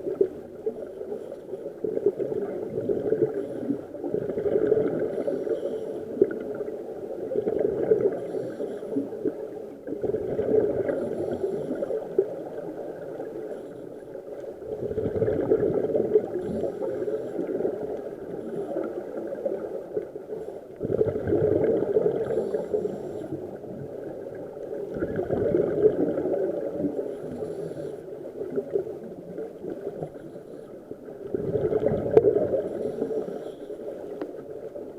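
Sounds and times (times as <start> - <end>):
exhaled bubbles gurgling underwater: 0.0 - 34.9
regulator breath hiss: 32.7 - 33.8.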